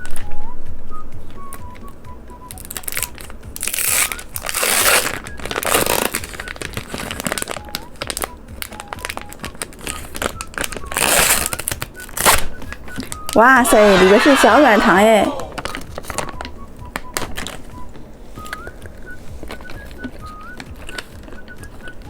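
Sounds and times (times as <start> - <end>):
candy wrapper crinkling: 2.6 - 13.4, 18.4 - 22.0
wrapper tearing: 2.7 - 12.6.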